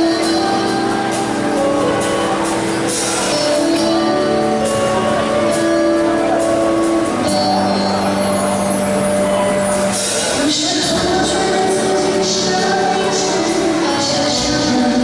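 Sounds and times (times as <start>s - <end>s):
live band long held chords: 0.0s - 15.0s.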